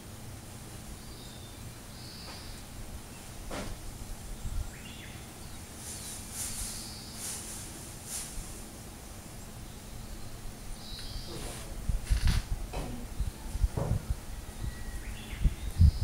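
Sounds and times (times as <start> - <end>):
high hissy bursts: 5.8 - 8.8
bird chirps: 9.6 - 11.4.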